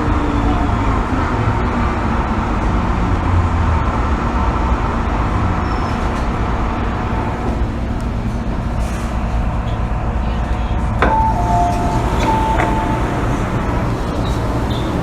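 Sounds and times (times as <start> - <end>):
train cabin running rumble: 0.0 - 15.0.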